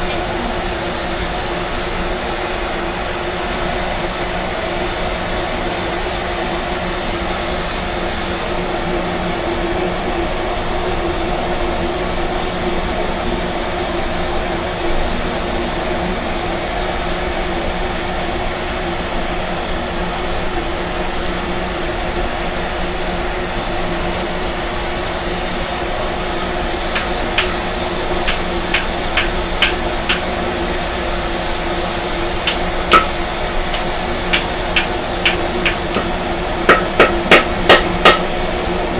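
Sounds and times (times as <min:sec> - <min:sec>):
steady mechanical hum: 0:00.0 - 0:38.9
hammer taps on metal: 0:27.0 - 0:27.6, 0:28.3 - 0:30.2, 0:32.5 - 0:38.3.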